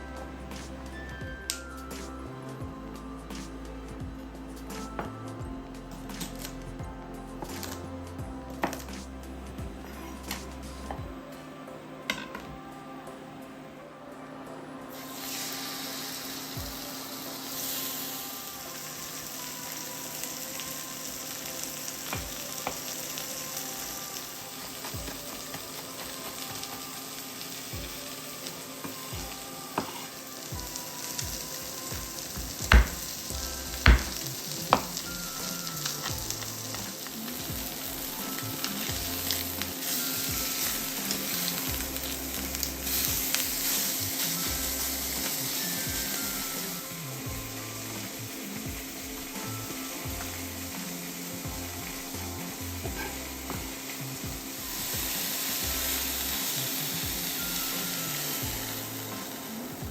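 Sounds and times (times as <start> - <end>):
meat sizzling in a pan: 14.9 - 59.9
utensil knocking on pan: 32.7 - 33.1, 33.8 - 34.9.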